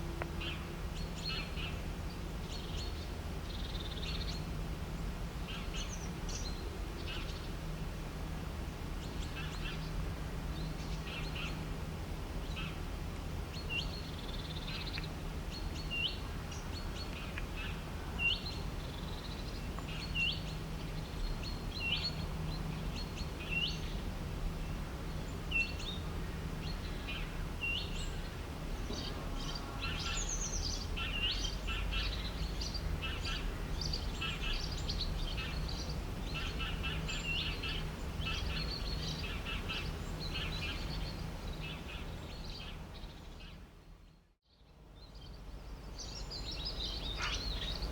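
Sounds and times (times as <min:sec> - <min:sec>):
birds chirping: 0:25.1 - 0:43.6, 0:45.1 - 0:47.9.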